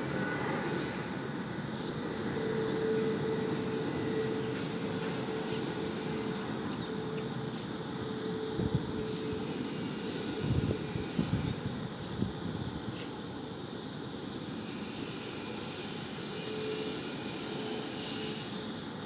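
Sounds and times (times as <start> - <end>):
soft hissing puffs: 0.6 - 2.1, 4.4 - 6.8, 7.4 - 8.0, 9.0 - 19.0.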